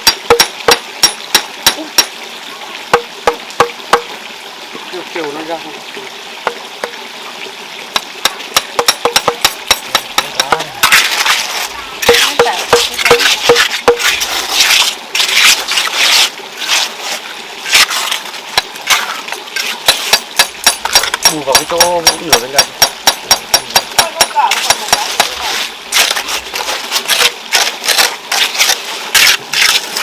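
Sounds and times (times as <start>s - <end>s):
sharp taps and knocks on stone: 0.0s - 2.1s, 2.9s - 4.1s, 8.0s - 11.0s, 12.0s - 14.1s, 19.9s - 25.4s
rough scraping on stone: 10.2s - 21.4s, 24.5s - 30.0s.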